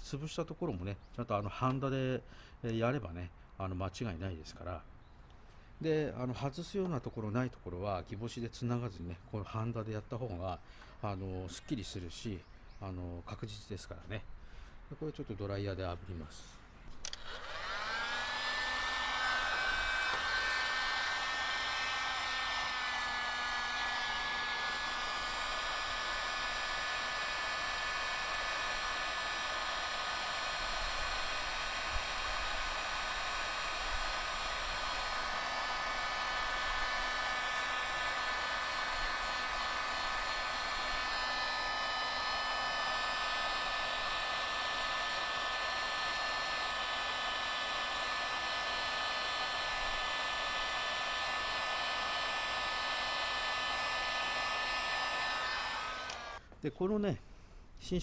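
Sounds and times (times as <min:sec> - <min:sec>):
hot-air dryer blowing: 0:17.0 - 0:56.5.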